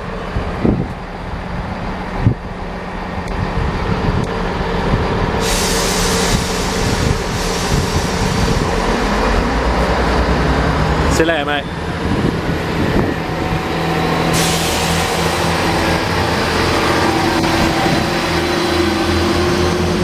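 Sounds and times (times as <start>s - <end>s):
diesel train engines running: 0.0s - 20.0s
loud hiss of air: 5.4s - 9.4s, 14.2s - 19.8s.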